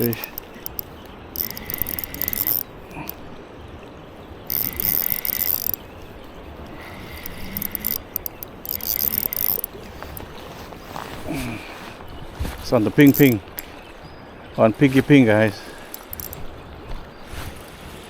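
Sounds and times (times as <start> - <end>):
fishing reel whirring: 0.0 - 3.2, 4.4 - 10.3, 13.0 - 13.4, 15.9 - 16.4.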